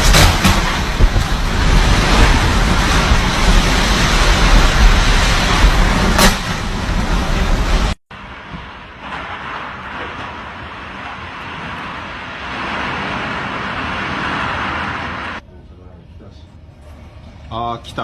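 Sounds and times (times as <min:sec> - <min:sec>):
wind buffeting microphone: 0:00.0 - 0:08.0
rain: 0:00.0 - 0:15.4
rushing wind: 0:00.0 - 0:15.4.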